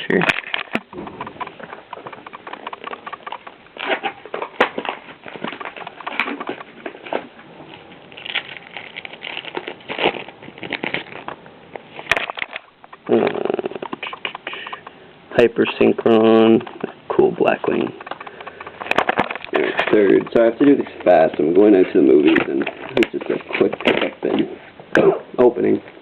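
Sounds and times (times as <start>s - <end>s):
foil wrapper crinkling: 0.0s - 14.9s, 15.6s - 24.7s
sharp clicks: 0.1s - 4.7s, 12.4s - 15.0s
cards rustling: 0.1s - 14.9s, 15.6s - 24.7s.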